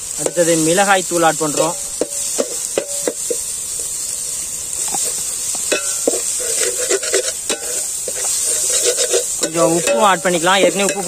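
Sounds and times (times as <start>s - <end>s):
food sizzling in oil: 0.0s - 11.0s
metal spoon scraping pan: 1.5s - 4.0s, 4.8s - 11.0s.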